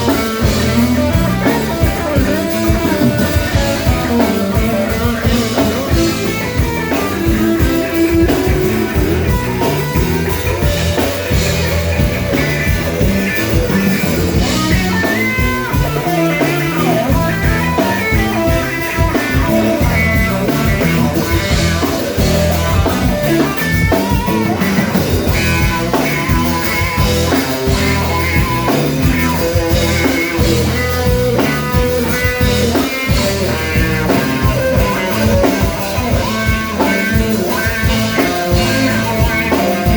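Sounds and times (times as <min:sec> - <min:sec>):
electric guitar: 0:00.0 - 0:39.9
rock band playing: 0:00.0 - 0:39.9.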